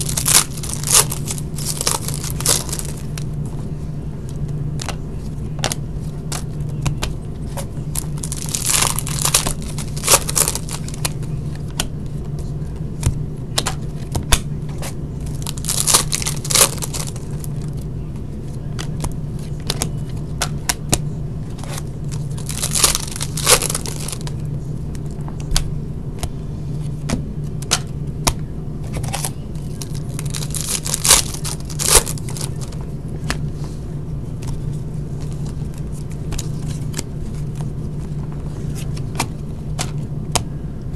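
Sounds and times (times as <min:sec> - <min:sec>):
wrapper tearing and crinkling: 0:00.0 - 0:03.2, 0:07.9 - 0:11.2, 0:15.2 - 0:17.8, 0:21.6 - 0:24.4, 0:29.0 - 0:32.8
steady low hum: 0:00.0 - 0:40.9.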